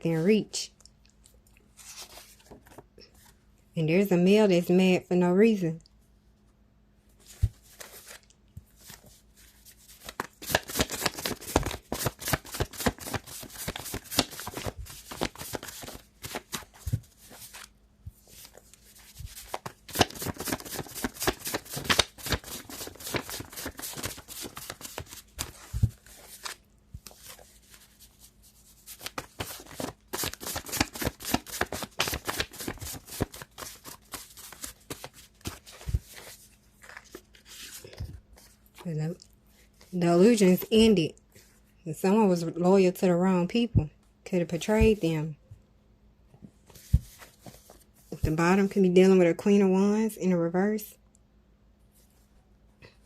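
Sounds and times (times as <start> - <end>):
cards being shuffled: 7.2 - 38.9.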